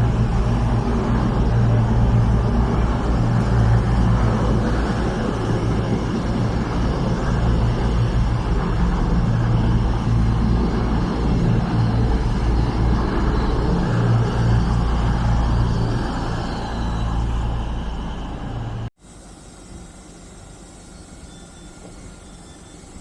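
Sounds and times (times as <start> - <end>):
train droning hum: 0.0 - 23.0.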